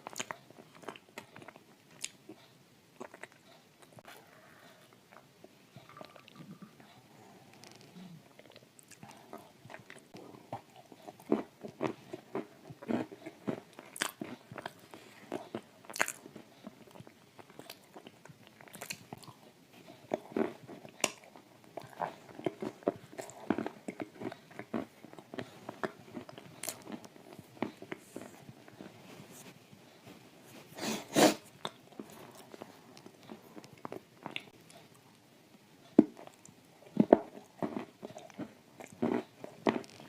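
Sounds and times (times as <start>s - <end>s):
crunchy cookie chewing: 0.0s - 30.1s, 31.2s - 40.0s.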